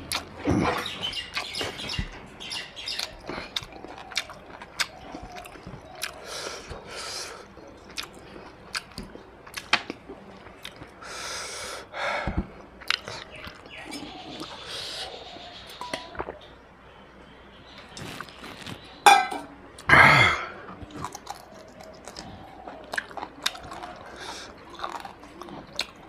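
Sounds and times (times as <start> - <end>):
chewing with lip smacks: 0.0 - 11.0, 12.6 - 14.6, 20.8 - 26.0.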